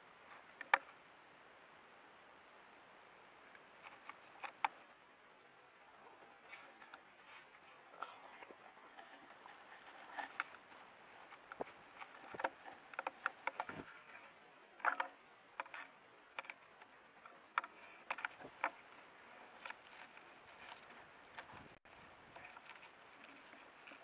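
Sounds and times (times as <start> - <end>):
clicks and scrapes on camera: 6.5 - 10.7, 11.3 - 16.6, 17.5 - 24.0.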